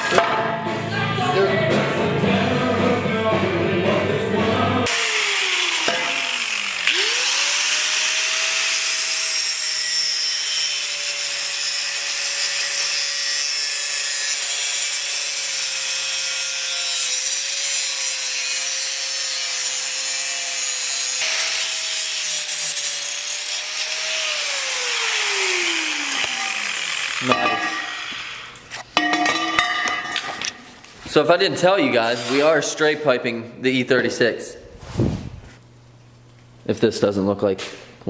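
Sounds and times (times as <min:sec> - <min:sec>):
harsh metal cutting noise: 0:04.8 - 0:28.9
power tool motor: 0:04.9 - 0:28.8.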